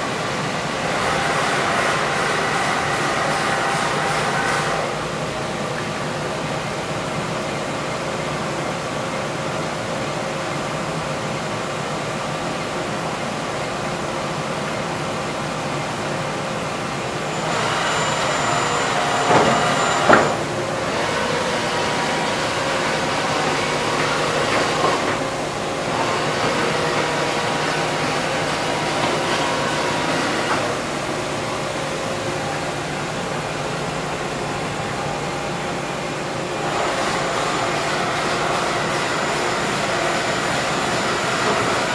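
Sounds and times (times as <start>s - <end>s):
machine humming tones: 14.5s - 41.9s.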